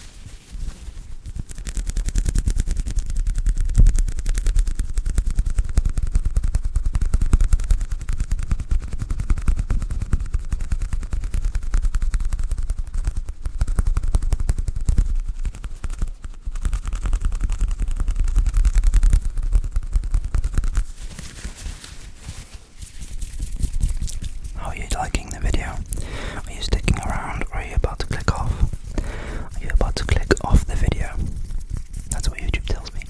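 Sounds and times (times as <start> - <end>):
scrunchie crackling: 20.8 - 33.0.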